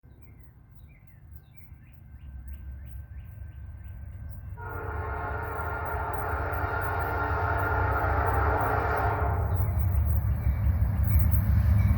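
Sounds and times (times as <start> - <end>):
freight train rumbling: 0.2 - 11.9
train air horn blowing: 4.6 - 9.9.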